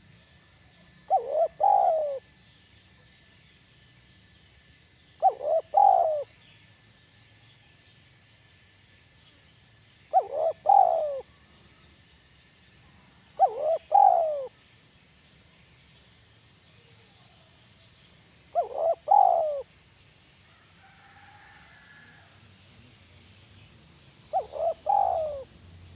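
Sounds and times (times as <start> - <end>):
faint high hiss: 0.0 - 25.9
dove cooing: 1.1 - 2.2, 5.2 - 6.3, 10.1 - 11.3, 13.4 - 14.5, 18.5 - 19.7, 24.3 - 25.5.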